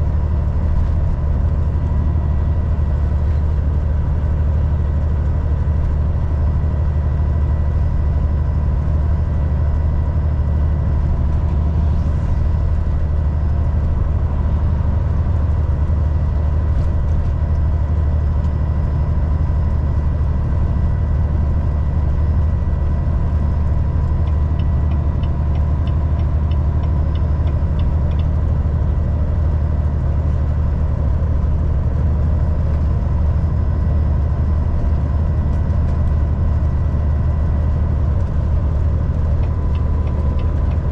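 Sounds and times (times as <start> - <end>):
truck engine and road drone: 0.0 - 40.9
light ticks: 24.2 - 28.4, 39.3 - 40.9.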